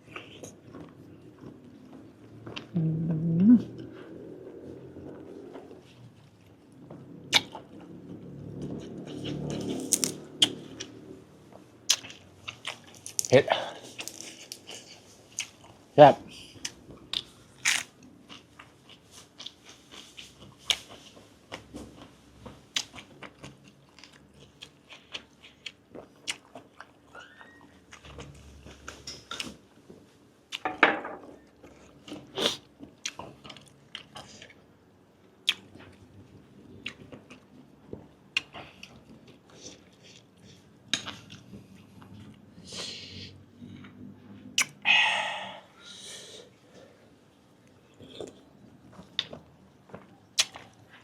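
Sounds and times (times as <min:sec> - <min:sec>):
chewing with wet smacks: 0:05.2 - 0:13.2, 0:13.8 - 0:15.8, 0:18.2 - 0:29.6, 0:31.6 - 0:34.7, 0:35.3 - 0:42.5, 0:47.6 - 0:51.0.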